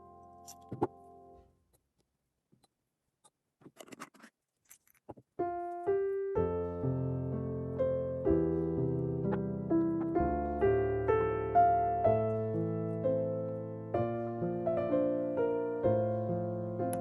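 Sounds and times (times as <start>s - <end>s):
piano music: 0.0s - 1.4s, 5.4s - 17.0s.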